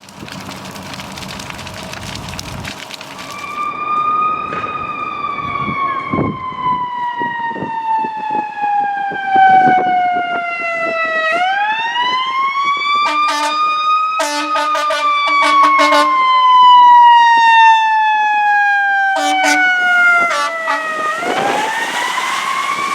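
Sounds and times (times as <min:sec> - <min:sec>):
engine and road noise: 0:00.0 - 0:08.8, 0:09.7 - 0:22.9
air horn blasts: 0:13.0 - 0:16.4, 0:19.2 - 0:21.5.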